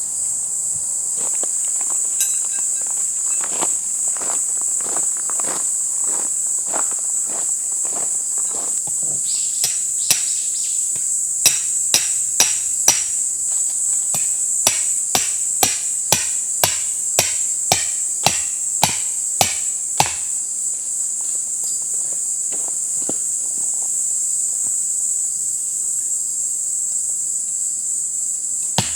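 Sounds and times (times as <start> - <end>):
insects trilling: 0.0 - 28.9
hammer blows ringing: 9.6 - 10.4, 11.4 - 13.2, 14.1 - 20.3.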